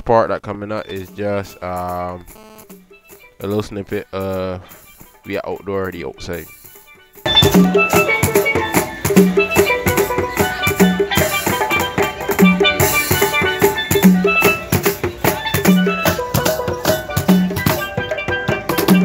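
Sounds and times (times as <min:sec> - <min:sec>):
steelpan playing: 0:00.8 - 0:19.0
hand drums: 0:00.9 - 0:19.0.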